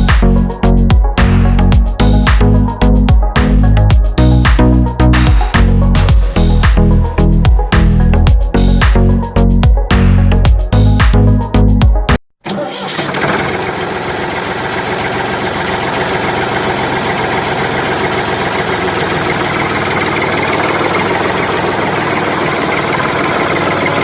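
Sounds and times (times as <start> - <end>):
music: 0.0 - 12.2
small engine chugging: 12.5 - 24.0.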